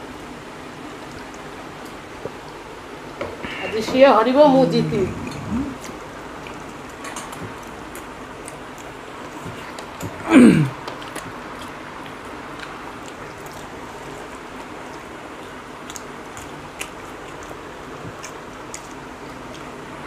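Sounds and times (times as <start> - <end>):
people chewing: 4.5 - 20.0.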